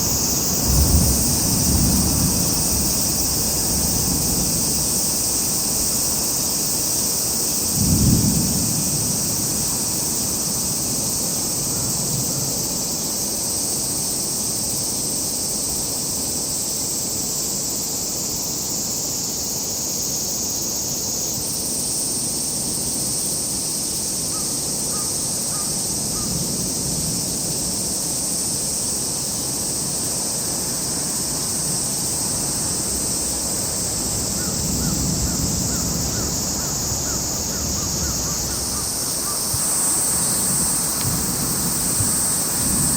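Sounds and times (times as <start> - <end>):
crows cawing: 34.4 - 39.7.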